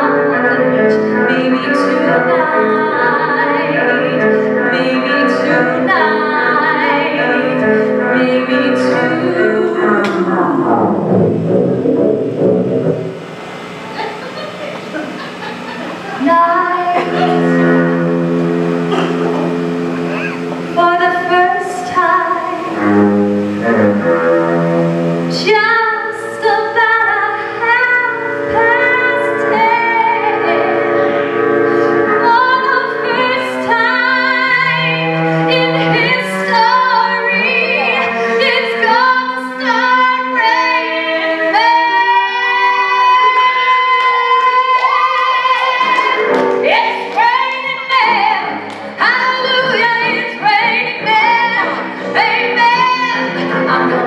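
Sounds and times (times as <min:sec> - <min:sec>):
woman singing: 0:00.0 - 0:10.6, 0:16.0 - 0:17.8, 0:20.7 - 0:22.9, 0:25.3 - 0:31.2, 0:32.1 - 0:54.0.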